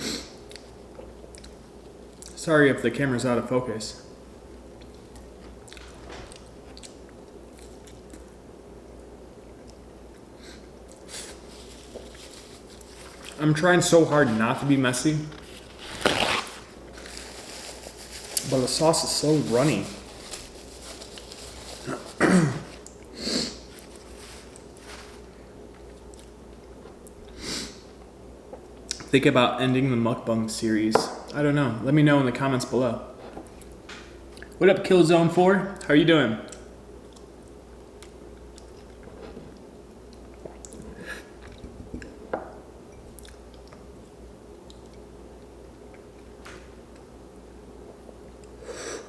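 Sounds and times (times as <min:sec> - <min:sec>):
person chewing food: 0:00.4 - 0:02.4, 0:43.1 - 0:43.9
person sniffing: 0:21.8 - 0:23.7, 0:27.4 - 0:27.8, 0:48.6 - 0:49.0.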